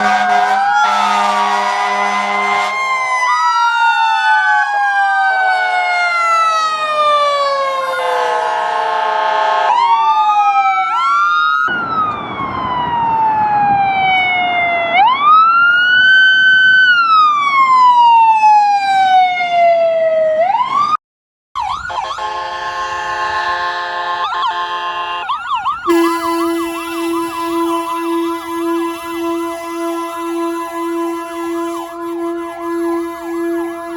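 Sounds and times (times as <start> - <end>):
vehicle horn blasts: 0.0 - 2.8, 21.9 - 33.9
emergency vehicle sirens wailing: 0.0 - 21.0, 21.6 - 33.9
road noise: 0.0 - 21.0, 21.6 - 33.9.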